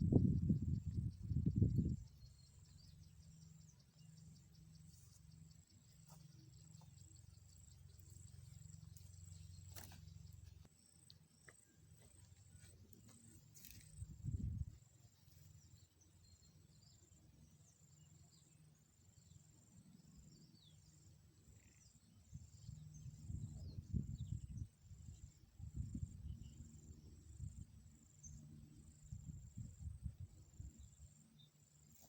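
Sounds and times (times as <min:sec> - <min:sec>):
insect chirping: 0:00.0 - 0:32.0.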